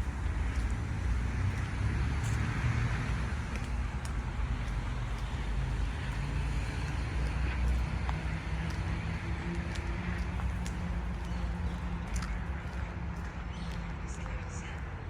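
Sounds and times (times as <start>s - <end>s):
car engines rumbling: 0.0s - 15.0s.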